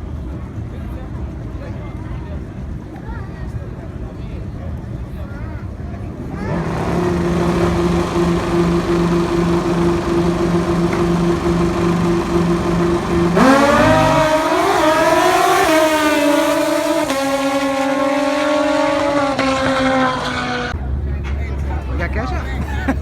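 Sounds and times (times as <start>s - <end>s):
racing motorcycle engine revving: 6.3s - 20.8s.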